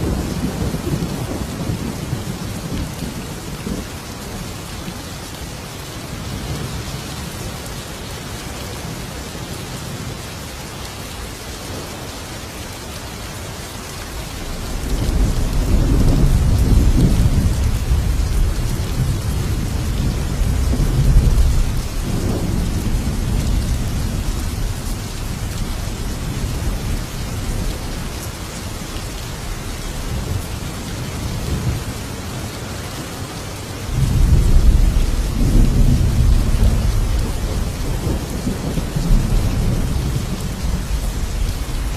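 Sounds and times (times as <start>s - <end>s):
heavy rain: 0.0s - 41.9s
thunder rolling: 14.5s - 27.9s.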